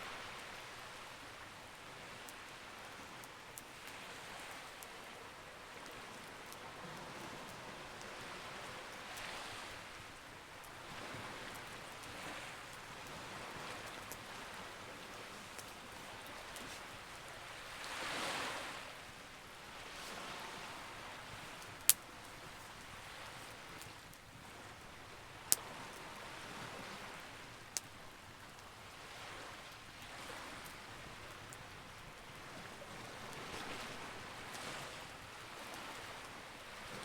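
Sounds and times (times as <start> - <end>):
sea waves: 0.0 - 37.0
campfire crackling and popping: 7.3 - 26.4, 27.0 - 29.0.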